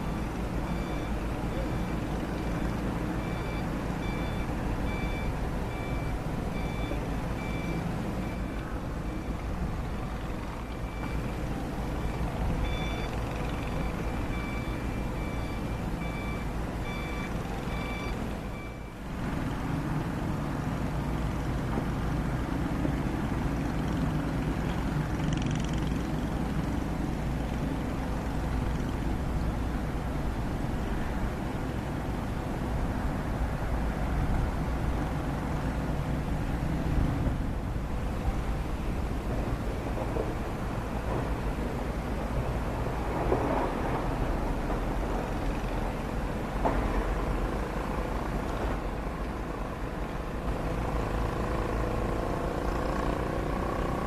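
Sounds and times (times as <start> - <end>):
warning alarm beeping: 0.0 - 19.0
excavator diesel engine running: 0.0 - 54.0.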